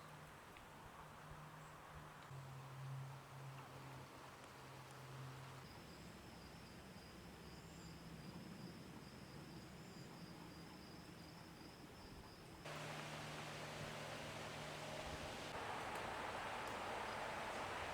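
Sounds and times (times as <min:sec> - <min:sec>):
low hum: 0:12.7 - 0:17.9
steady hiss: 0:12.7 - 0:17.9.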